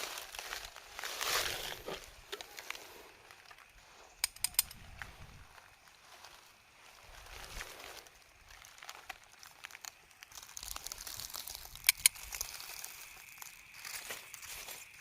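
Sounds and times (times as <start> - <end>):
crinkling and rustling: 0.0 - 15.0
sharp clicks: 4.2 - 5.1, 11.8 - 12.4.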